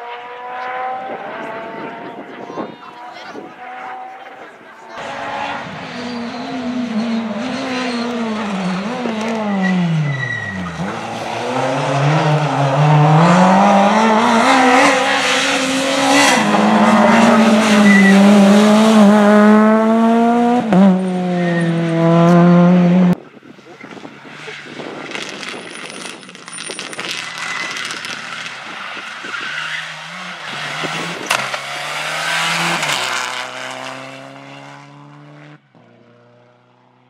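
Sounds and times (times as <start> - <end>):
rally car engine accelerating: 5.0 - 23.2, 27.8 - 37.0.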